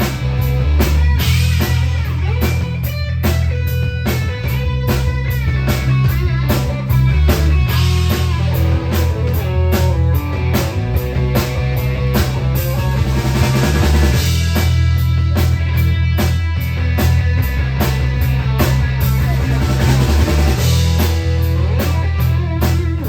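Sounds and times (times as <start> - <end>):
drum kit beat: 0.0 - 23.0
electric guitar: 0.0 - 23.0
heavy bass line: 0.0 - 23.0
rock song: 0.0 - 23.0.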